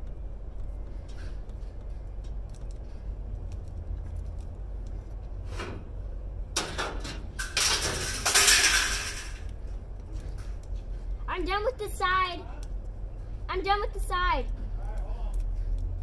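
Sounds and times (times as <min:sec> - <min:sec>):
scrap metal clattering: 0:06.6 - 0:09.4.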